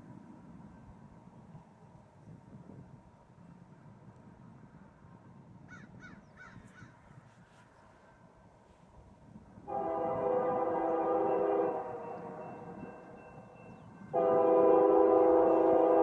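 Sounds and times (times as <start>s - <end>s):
low wind rumble: 0.0s - 16.0s
locomotive air horn: 9.7s - 13.3s, 14.1s - 16.0s.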